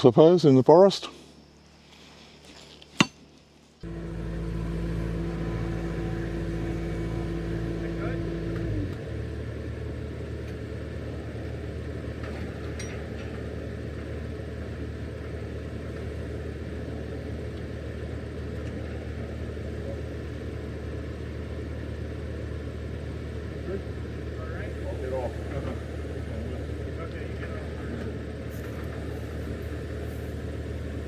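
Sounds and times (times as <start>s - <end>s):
engine running steadily: 3.8s - 31.0s.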